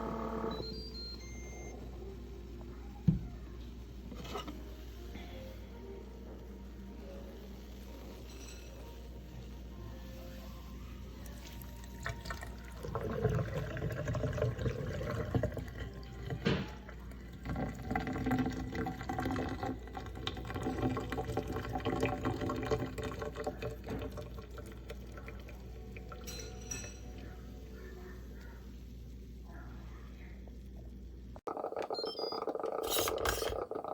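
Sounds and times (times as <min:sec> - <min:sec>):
water pouring into container: 0:11.2 - 0:26.2.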